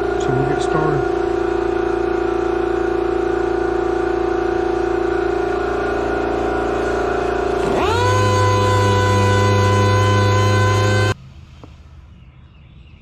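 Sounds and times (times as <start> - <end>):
power sander whining: 3.9 - 11.2.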